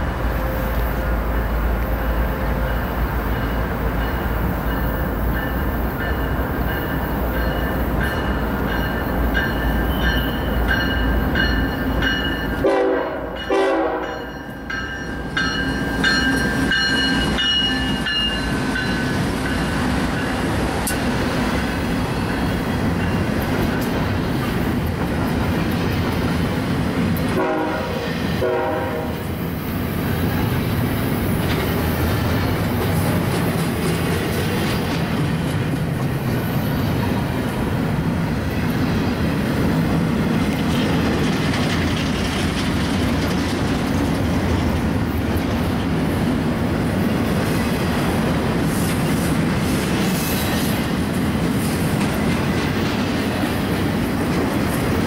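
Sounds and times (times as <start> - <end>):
train wheels rumbling on rail: 0.0 - 55.0
train horn blasts: 12.6 - 14.3, 27.3 - 29.3.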